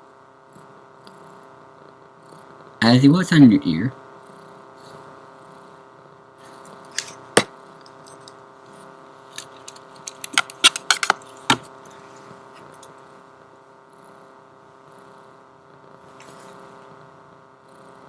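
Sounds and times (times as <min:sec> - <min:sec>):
steady background hum: 0:00.0 - 0:18.0
metallic clinks and clicks: 0:09.4 - 0:11.2.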